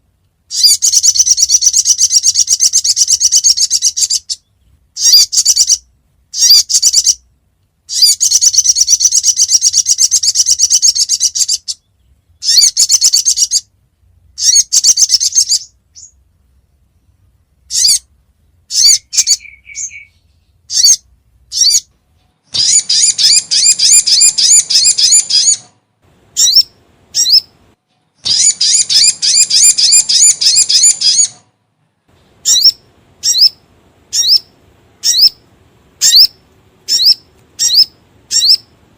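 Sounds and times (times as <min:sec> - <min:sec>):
recorded bird song trills: 0:00.0 - 0:38.9
sharp rising bird notes: 0:17.7 - 0:21.9, 0:22.5 - 0:27.6, 0:28.2 - 0:31.5, 0:32.4 - 0:35.4, 0:36.0 - 0:38.7.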